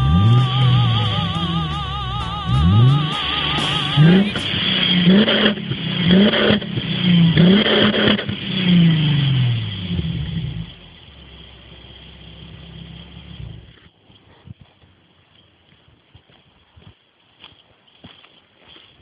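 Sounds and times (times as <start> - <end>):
car engine revving: 0.0 - 13.8.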